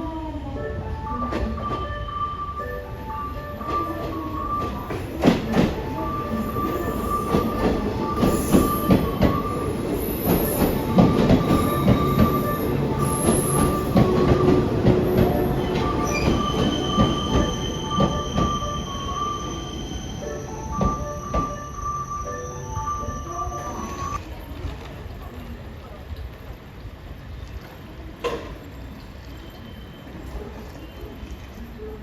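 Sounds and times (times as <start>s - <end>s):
train wheels clattering: 4.0s - 19.6s
high wheel squeal: 6.0s - 24.2s.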